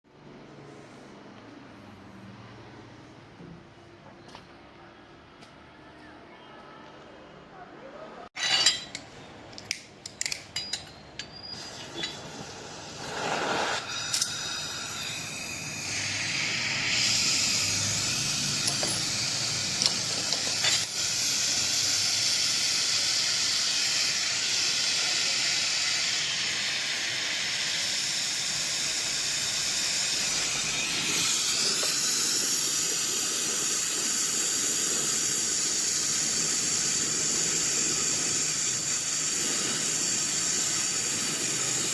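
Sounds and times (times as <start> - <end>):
compressed gas hissing: 11.1 - 41.9.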